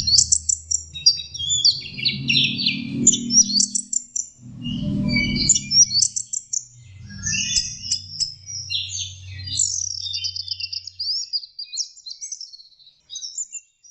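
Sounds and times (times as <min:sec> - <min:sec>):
low rumble: 0:00.0 - 0:10.6
thrush singing trills and whistles: 0:00.0 - 0:11.3.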